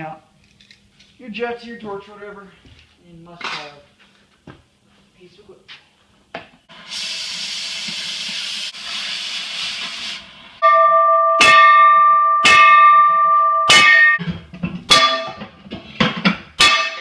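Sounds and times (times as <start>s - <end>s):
cutting torch gas hiss: 6.7s - 10.6s
loud music with ringing notes: 11.4s - 14.2s.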